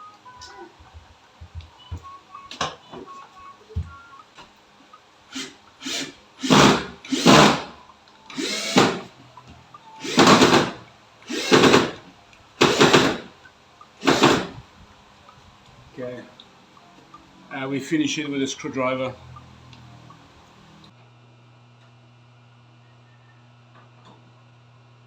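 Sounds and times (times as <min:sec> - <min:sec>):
power drill bursts: 0:05.3 - 0:09.1, 0:10.0 - 0:12.0, 0:12.6 - 0:13.3, 0:14.0 - 0:14.6.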